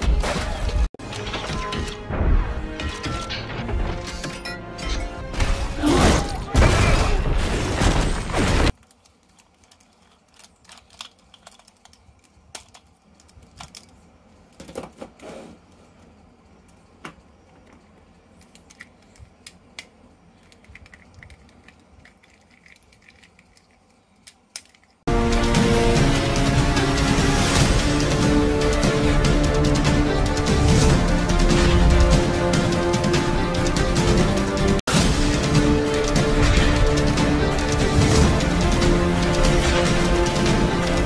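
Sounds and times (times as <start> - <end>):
plastic toys and packaging handled: 8.7 - 25.1.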